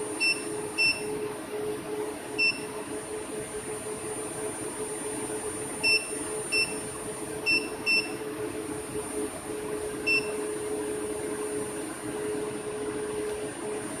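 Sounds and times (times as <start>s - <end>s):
steady hum: 0.0s - 14.0s
short electronic beeps: 5.8s - 6.8s.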